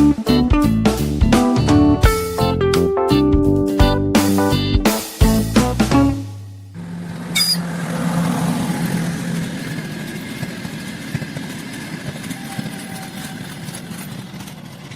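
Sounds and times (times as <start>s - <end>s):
engine idling: 6.4s - 12.3s.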